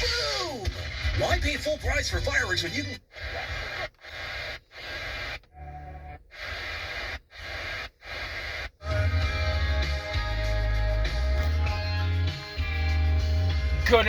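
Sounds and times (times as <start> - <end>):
guitar music with heavy bass: 0.0 - 3.8, 8.8 - 14.0
car radio switching stations: 0.0 - 14.0.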